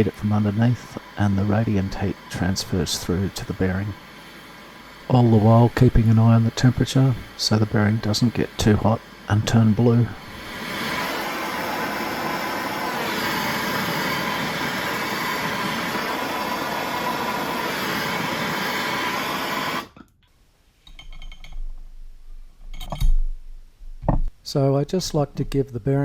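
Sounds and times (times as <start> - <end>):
heater rushing hiss: 0.0 - 20.0.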